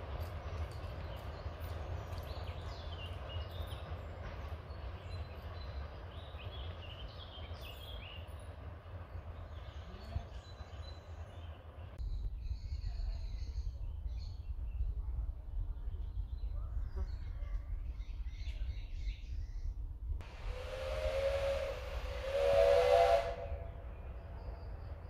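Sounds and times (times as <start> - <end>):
low rumble: 17.8 - 24.6.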